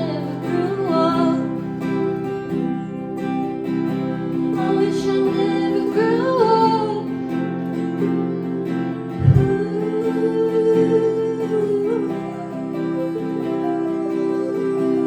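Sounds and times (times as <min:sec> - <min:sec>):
acoustic guitar: 0:00.0 - 0:15.0
low thump: 0:09.2 - 0:09.5
person singing long notes: 0:09.2 - 0:15.0.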